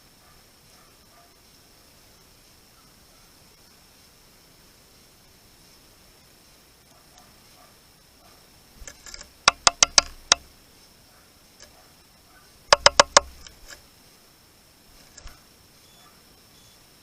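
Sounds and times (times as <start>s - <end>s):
bird pecking at feeder: 8.8s - 10.5s, 12.6s - 13.8s, 14.9s - 15.4s.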